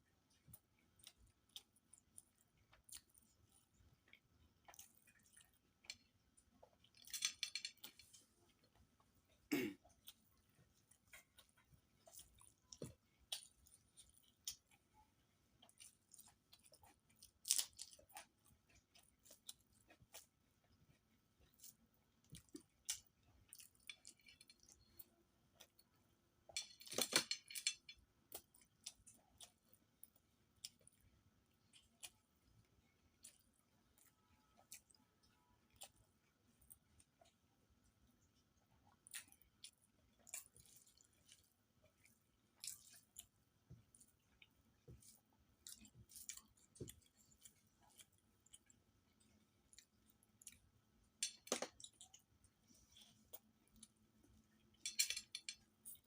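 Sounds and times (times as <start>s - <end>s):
person chewing: 0.2s - 25.9s, 26.5s - 37.4s, 38.9s - 56.0s
crunchy chewing: 0.3s - 8.9s, 9.8s - 25.8s, 38.9s - 50.7s.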